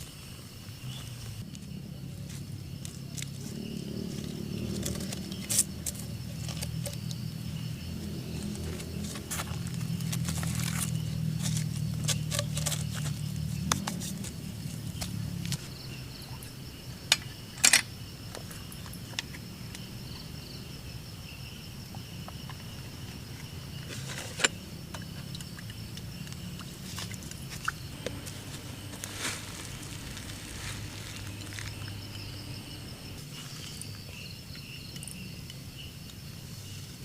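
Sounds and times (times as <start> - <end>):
low hum: 24.5 - 33.6.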